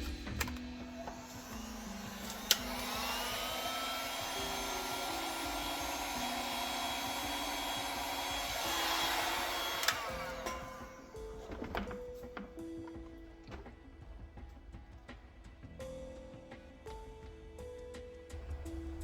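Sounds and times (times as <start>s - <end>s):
electric blower motor whining: 0.0s - 12.6s
quiet background music: 0.0s - 19.0s
blower switch click: 1.8s - 3.4s, 6.4s - 10.9s.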